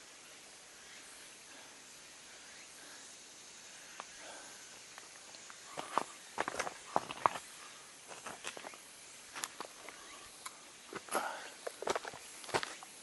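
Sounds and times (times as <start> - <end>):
faint steady hiss: 0.0 - 13.0
footsteps on rough path: 5.0 - 13.0.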